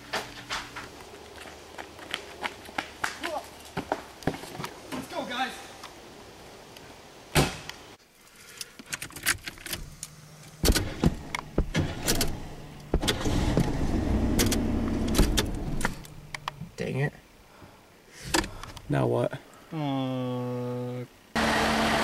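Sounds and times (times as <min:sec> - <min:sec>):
car door shutting: 0:10.6 - 0:16.0
engine cranking and running: 0:11.6 - 0:16.0.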